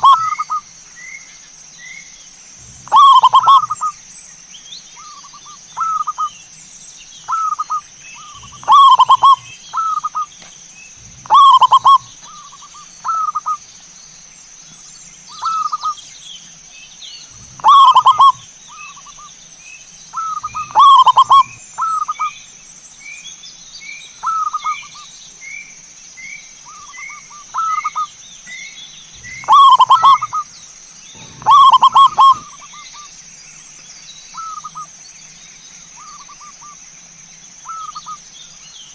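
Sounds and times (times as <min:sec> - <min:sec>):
doves cooing: 0:00.0 - 0:00.6, 0:02.6 - 0:04.0, 0:07.3 - 0:13.6, 0:17.2 - 0:19.2, 0:20.2 - 0:22.3, 0:26.7 - 0:28.1, 0:29.1 - 0:33.1
small bird chirping: 0:00.0 - 0:38.9.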